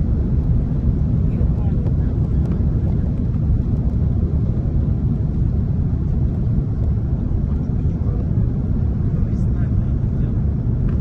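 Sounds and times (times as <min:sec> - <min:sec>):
aircraft cabin engine rumble: 0:00.0 - 0:11.0.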